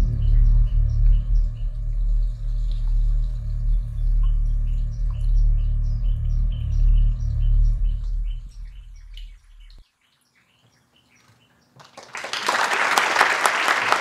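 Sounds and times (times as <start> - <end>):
loud low rumble: 0.0 - 9.8
bird chirping: 0.0 - 11.8.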